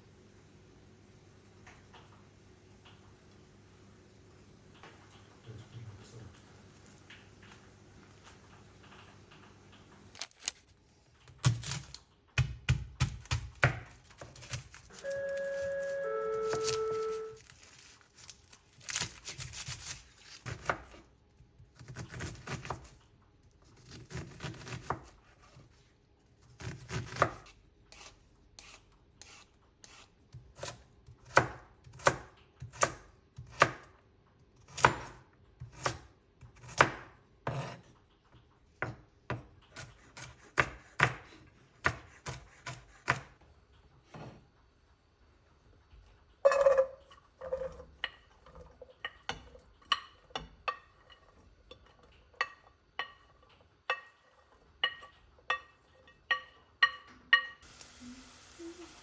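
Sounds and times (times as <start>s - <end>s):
knife chopping on cutting board: 12.4s - 14.8s, 18.9s - 21.0s, 26.6s - 33.9s, 34.6s - 37.9s, 38.8s - 43.4s
knife scraping on board: 26.6s - 30.8s, 37.4s - 38.0s, 39.7s - 43.3s.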